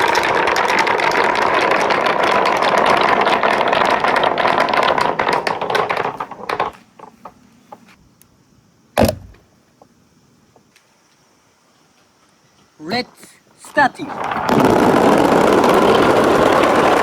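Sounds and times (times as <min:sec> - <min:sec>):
marbles rattling on steel track: 0:00.0 - 0:07.3, 0:14.0 - 0:17.0
sharp knock: 0:09.0 - 0:09.4.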